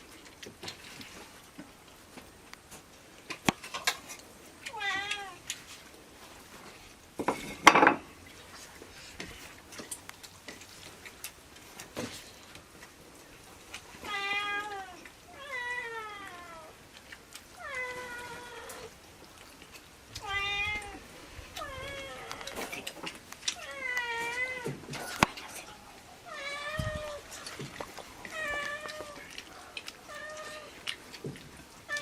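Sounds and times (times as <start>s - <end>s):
cat meowing: 4.7s - 5.4s, 14.0s - 16.7s, 20.2s - 21.0s, 26.2s - 27.3s, 28.3s - 30.8s.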